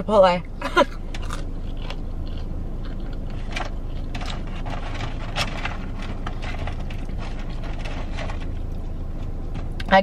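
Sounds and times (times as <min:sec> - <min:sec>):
car cabin rumble: 0:00.0 - 0:10.0
person chewing food: 0:00.8 - 0:05.4.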